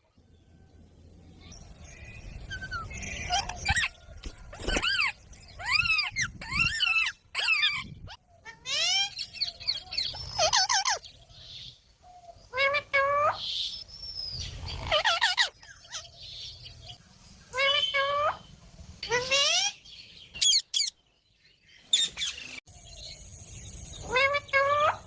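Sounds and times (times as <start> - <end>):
parrot squawking: 4.8 - 11.0, 14.8 - 16.1.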